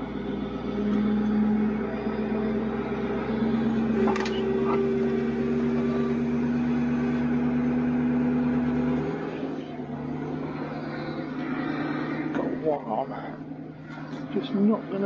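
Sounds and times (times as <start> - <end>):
hydraulic whine: 0.0 - 15.0
truck engine hum: 0.0 - 15.0.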